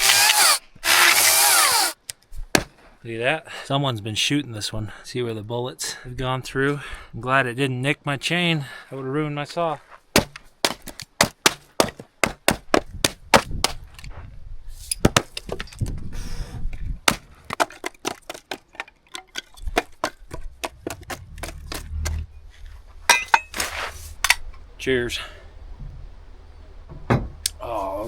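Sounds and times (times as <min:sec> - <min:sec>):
firewood knocking and cracking: 0:02.5 - 0:02.8, 0:10.1 - 0:13.8, 0:17.0 - 0:21.9.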